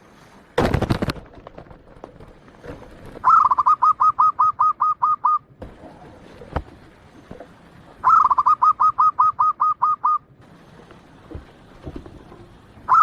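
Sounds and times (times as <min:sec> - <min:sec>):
dove cooing song: 0:03.1 - 0:06.6, 0:08.0 - 0:10.3, 0:12.8 - 0:13.0.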